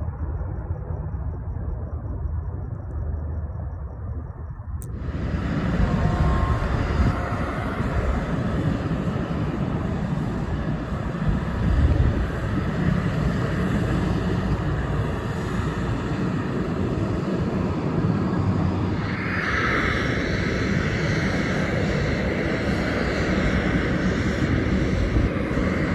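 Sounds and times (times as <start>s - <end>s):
airplane engine rumbling: 0.0s - 25.9s
click: 2.7s - 3.0s.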